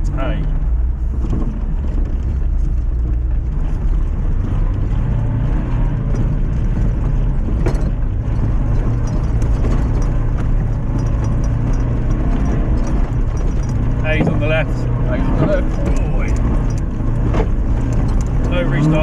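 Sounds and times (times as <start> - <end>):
car engine running: 0.0 - 19.0
small clicks and rattles: 1.2 - 19.0.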